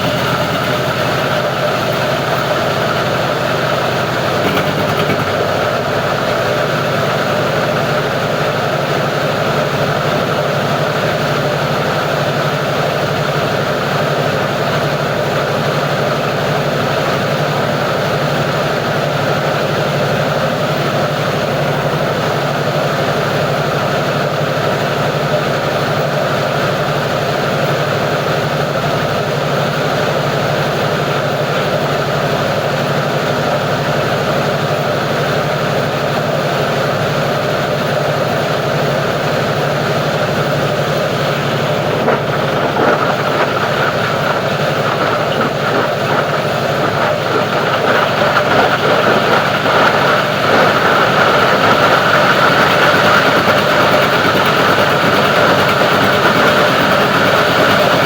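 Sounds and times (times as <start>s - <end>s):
plastic grinding machine drone: 0.0s - 7.5s, 39.3s - 58.0s.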